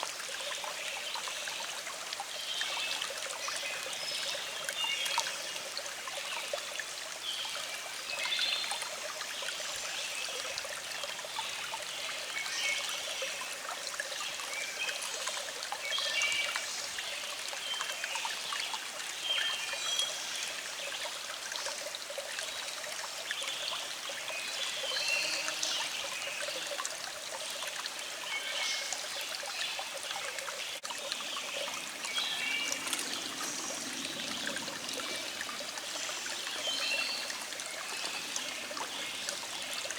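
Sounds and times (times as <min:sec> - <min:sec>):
stream trickling: 0:00.0 - 0:39.9
birds chirping: 0:31.0 - 0:39.8.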